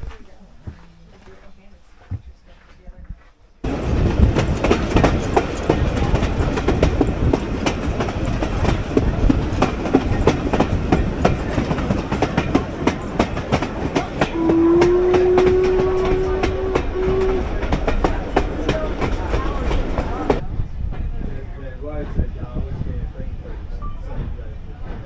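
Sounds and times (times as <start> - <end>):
train rumbling: 0.0 - 25.0
wheels clicking over rail joints: 3.6 - 20.4
locomotive horn blast: 14.3 - 17.8.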